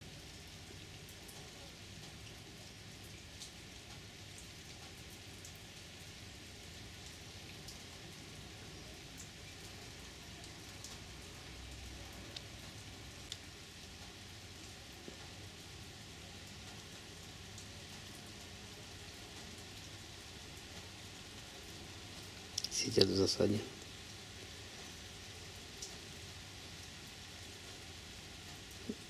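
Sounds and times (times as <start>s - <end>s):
steady low hiss: 0.0s - 29.0s.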